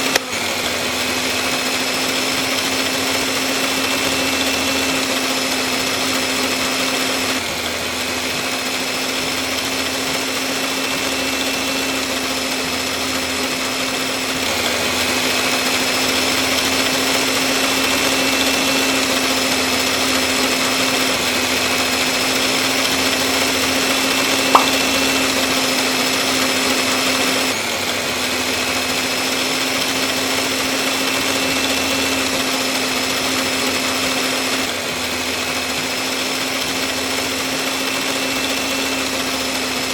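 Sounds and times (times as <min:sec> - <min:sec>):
small electric motor whining: 0:00.0 - 0:39.9
sharp click: 0:24.6 - 0:24.9.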